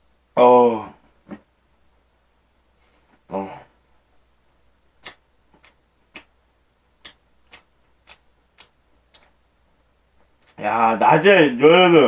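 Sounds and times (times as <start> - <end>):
wet mouth clicks chewing: 5.0 - 6.3, 7.0 - 9.4.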